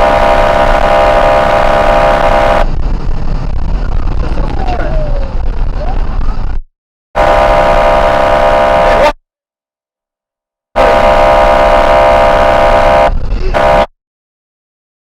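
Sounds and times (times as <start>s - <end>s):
engine and road noise: 0.0s - 6.6s, 7.2s - 9.1s, 10.8s - 13.9s
police car horn blast: 7.2s - 9.1s, 10.8s - 13.9s.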